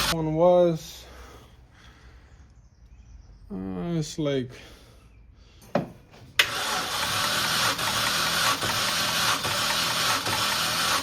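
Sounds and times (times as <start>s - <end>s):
engine cranking on starter motor: 6.4s - 11.0s.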